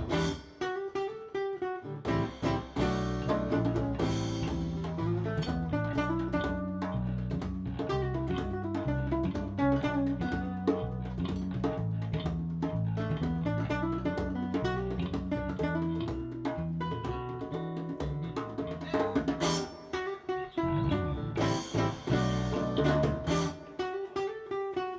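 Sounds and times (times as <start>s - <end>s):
bass guitar low notes: 0.0s - 0.4s, 2.0s - 17.2s, 20.6s - 23.6s
acoustic guitar picking melody: 0.0s - 6.9s, 19.3s - 24.9s.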